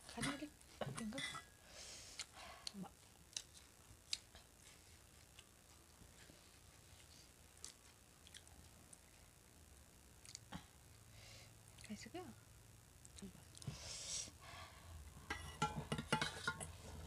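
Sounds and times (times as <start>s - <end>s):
faint chewing: 2.1s - 9.2s, 10.2s - 10.7s
small mouth clicks: 10.2s - 10.5s.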